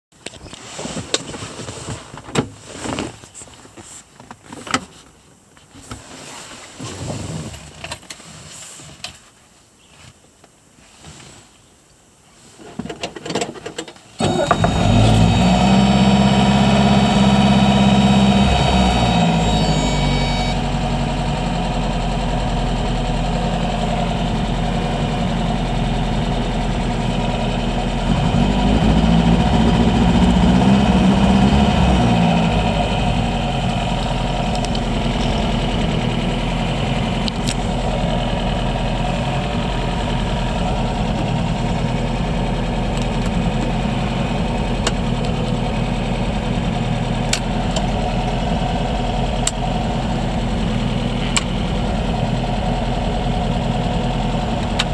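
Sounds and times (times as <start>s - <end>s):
car engine idling: 14.2s - 54.9s.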